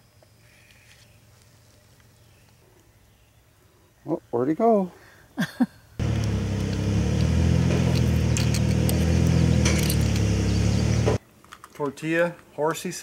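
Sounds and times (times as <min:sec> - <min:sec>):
engine running steadily: 0:06.0 - 0:11.2
light clicks and rattles: 0:07.8 - 0:10.3.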